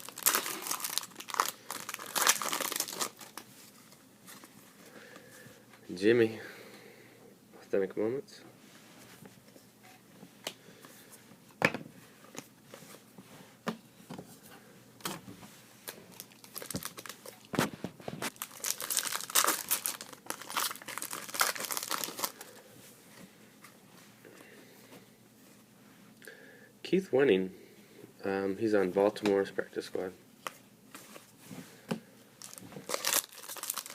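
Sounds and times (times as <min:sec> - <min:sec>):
foil wrapper tearing and crinkling: 0:00.0 - 0:03.4, 0:16.1 - 0:17.3, 0:18.3 - 0:22.4, 0:32.4 - 0:33.9.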